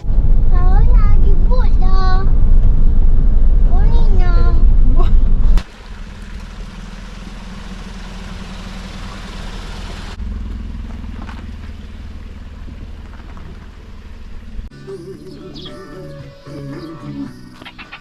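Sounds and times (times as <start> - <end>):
rushing noise: 0.0 - 6.2
vehicle engine drone: 0.0 - 18.0.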